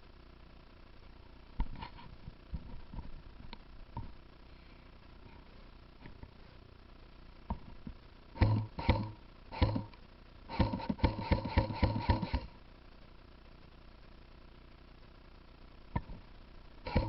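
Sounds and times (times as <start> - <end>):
airsoft gun shots with gearbox whir: 8.4 - 12.6.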